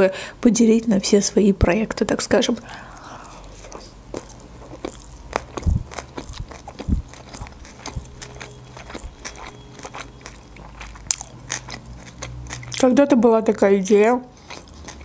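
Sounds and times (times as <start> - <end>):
wet mouth chewing clicks: 2.9 - 12.9, 14.3 - 15.0.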